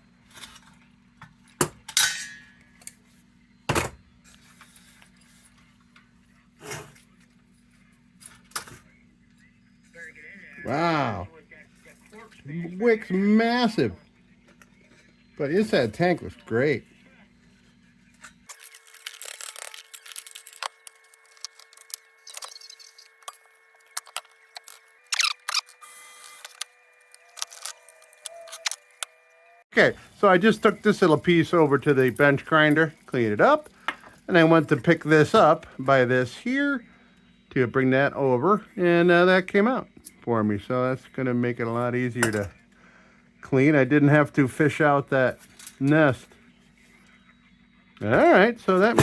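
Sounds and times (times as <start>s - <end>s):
faint steady hum: 0.0s - 49.0s
heater parts clicking and scraping: 18.2s - 29.1s.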